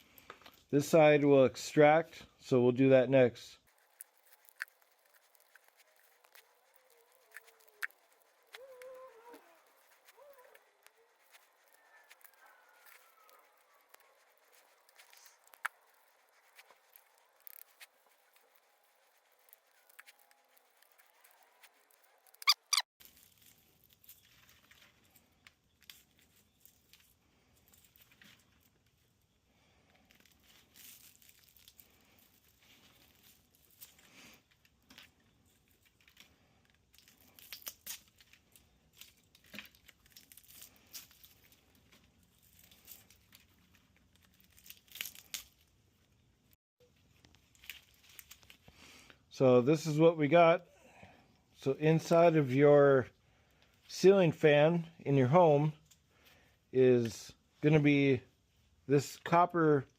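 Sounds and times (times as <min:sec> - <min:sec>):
copper wire crinkling and tearing: 0:03.6 - 0:46.2, 0:46.8 - 0:49.1.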